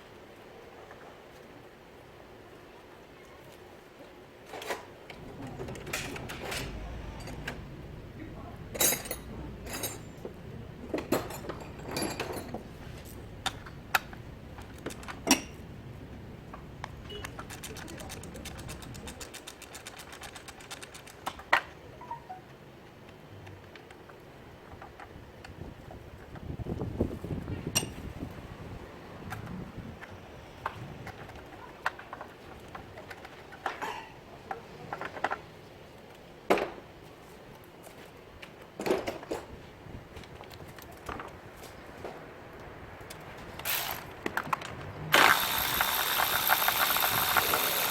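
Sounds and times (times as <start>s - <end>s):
metal tools clinking: 5.2s - 7.7s, 8.7s - 10.3s, 10.9s - 13.1s, 43.6s - 44.2s.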